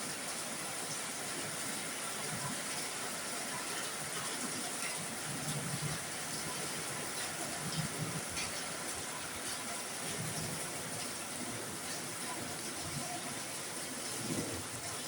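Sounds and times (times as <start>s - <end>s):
heavy rain on a roof: 0.0s - 15.0s.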